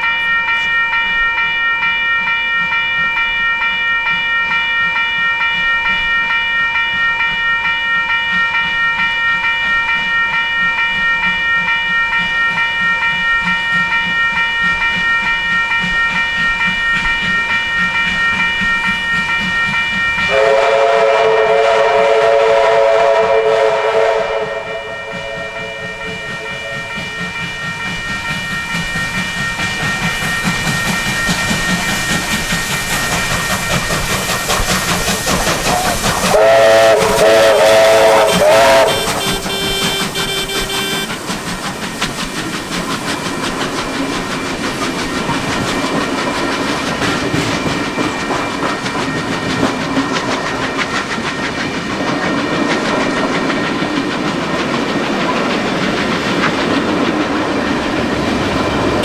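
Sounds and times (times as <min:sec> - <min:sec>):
high steady ringing tone: 0:00.0 - 0:22.9, 0:23.9 - 0:41.4
train rolling rumble: 0:00.0 - 0:59.0
train whistle blasts: 0:20.3 - 0:26.9, 0:36.2 - 0:41.3.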